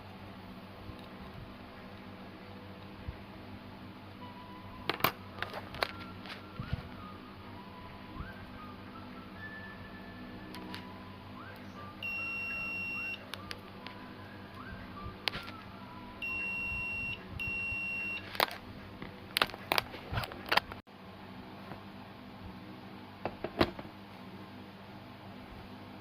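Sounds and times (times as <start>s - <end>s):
electronic beeps: 11.6s - 13.3s, 16.0s - 18.3s.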